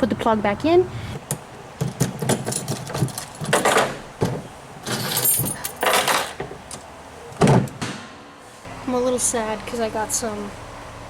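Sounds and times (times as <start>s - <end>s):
metal hand tools clinking: 4.8s - 6.4s.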